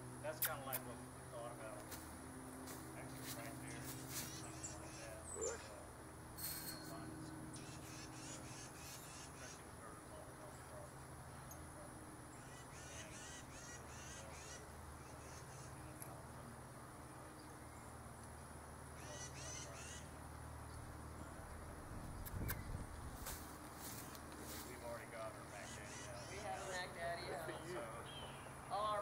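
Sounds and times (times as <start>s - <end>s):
steady low hum: 0.0s - 29.0s
faint bird calls: 2.7s - 16.5s, 18.9s - 28.9s.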